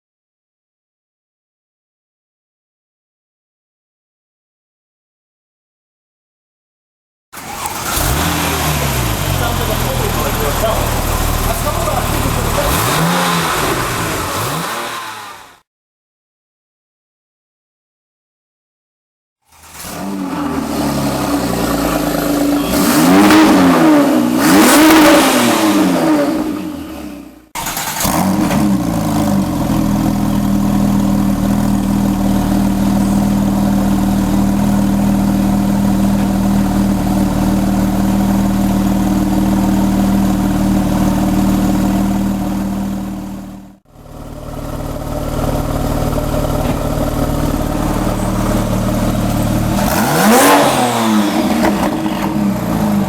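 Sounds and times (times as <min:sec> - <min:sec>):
car exhaust revving and idling: 0:07.6 - 0:15.6, 0:19.6 - 0:27.3, 0:28.0 - 0:53.0.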